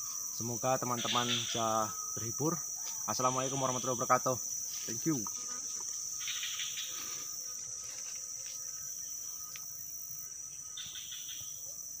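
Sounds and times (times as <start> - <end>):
insect chirping: 0.0 - 12.0
insect drone: 0.0 - 12.0.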